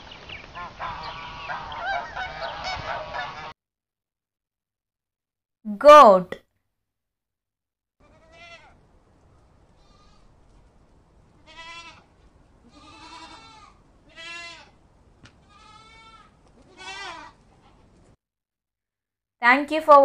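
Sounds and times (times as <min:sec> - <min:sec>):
goat bleating: 0:08.0 - 0:08.8, 0:09.8 - 0:10.3, 0:11.4 - 0:14.8, 0:15.4 - 0:17.4
low steady hiss: 0:08.0 - 0:18.2.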